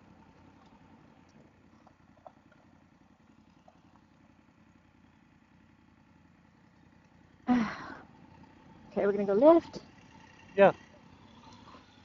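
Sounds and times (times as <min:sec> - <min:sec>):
motorcycle engine hum: 0:00.0 - 0:12.0
road noise: 0:00.0 - 0:12.0.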